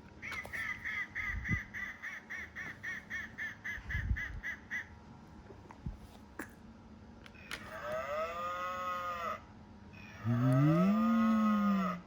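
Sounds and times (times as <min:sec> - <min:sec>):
cow-like moos: 0:10.2 - 0:12.0.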